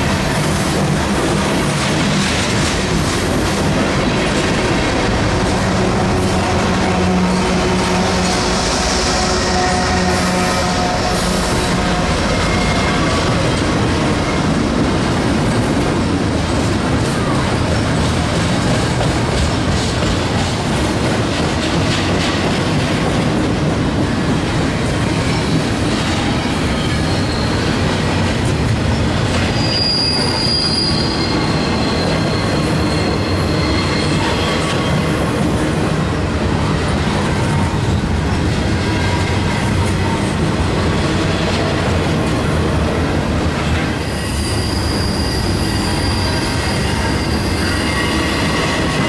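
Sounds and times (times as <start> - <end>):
train wheels rumbling on rails: 0.0 - 49.0
high-pitched wheel squeal: 29.5 - 35.0, 43.9 - 49.0.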